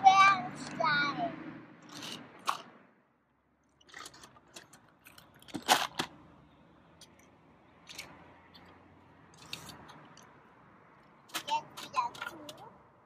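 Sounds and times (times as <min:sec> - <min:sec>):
plastic clatter: 0:03.8 - 0:06.2.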